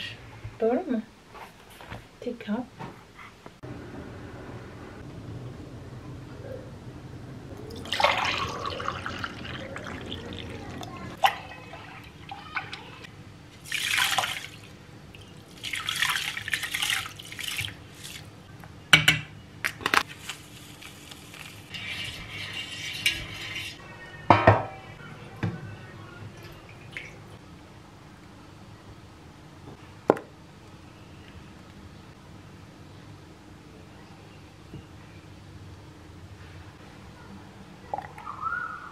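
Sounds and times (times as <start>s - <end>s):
water running: 7.6s - 13.0s
dishes clinking and knocking: 18.9s - 19.3s, 24.3s - 24.8s.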